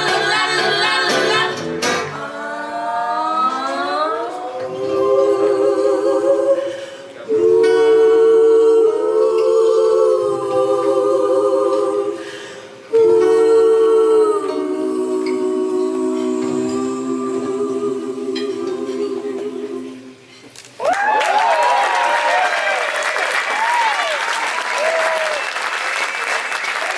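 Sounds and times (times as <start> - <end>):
women singing in close harmony: 0.0 - 20.4.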